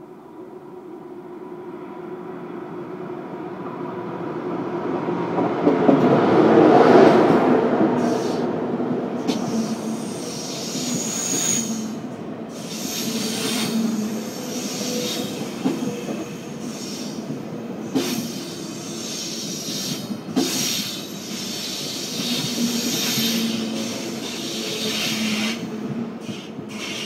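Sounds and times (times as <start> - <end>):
train wheels squealing on rails: 8.0 - 8.6, 9.2 - 27.0.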